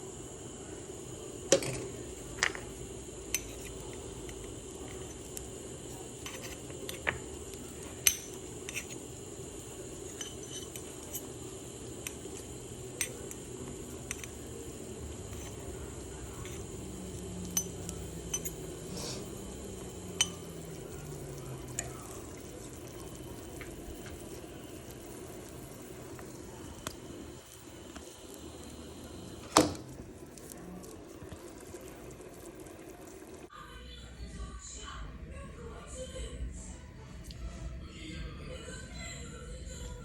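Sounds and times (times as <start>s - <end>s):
steady hum: 0.0s - 33.7s
metal spoon clinking on kitchenware: 3.3s - 4.4s, 8.0s - 9.0s, 10.1s - 11.3s, 17.4s - 18.6s, 20.1s - 20.5s.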